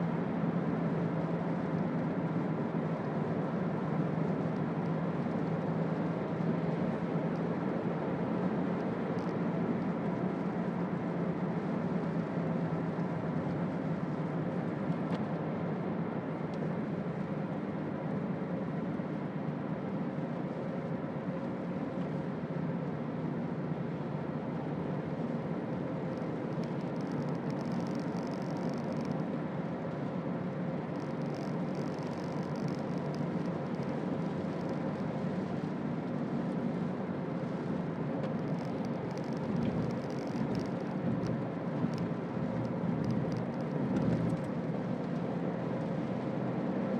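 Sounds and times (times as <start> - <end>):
car engine drone: 0.0 - 46.9
tyre and road noise: 25.4 - 46.8.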